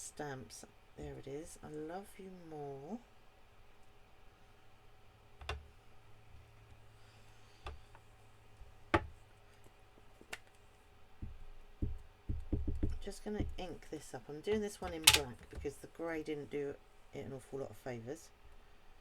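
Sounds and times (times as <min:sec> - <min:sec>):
faint steady hum: 0:00.0 - 0:19.0
soft knocks: 0:11.2 - 0:13.8
stamps and cases clicking: 0:14.6 - 0:15.7.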